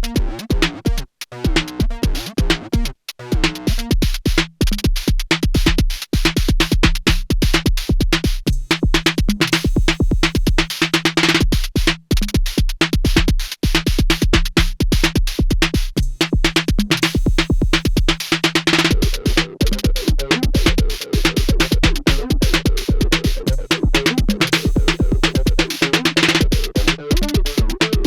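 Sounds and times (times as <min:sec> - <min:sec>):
fast hi-hats: 0:00.0 - 0:28.0
kick drum beat: 0:00.0 - 0:28.0
pitched percussion tones: 0:17.2 - 0:28.0.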